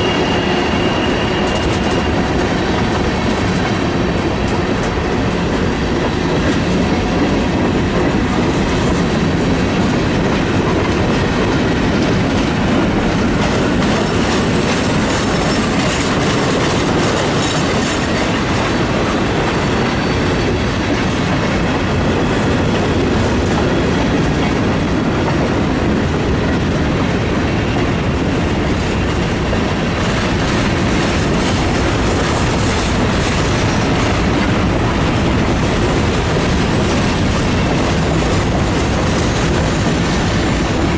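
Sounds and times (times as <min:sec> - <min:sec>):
thin high squeal: 0:00.0 - 0:03.5
clatter over rail joints: 0:00.0 - 0:24.6, 0:28.7 - 0:40.9
train wheel and rail noise: 0:00.0 - 0:40.9.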